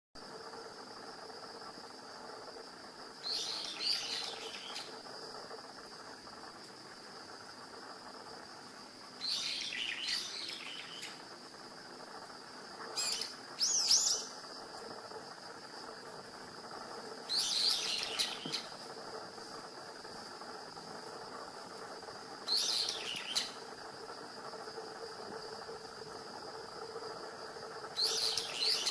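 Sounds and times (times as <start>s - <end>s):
high-pitched insect trill: 0.2s - 28.9s
small songbirds chirping: 0.3s - 6.4s, 9.1s - 19.0s, 22.3s - 28.9s.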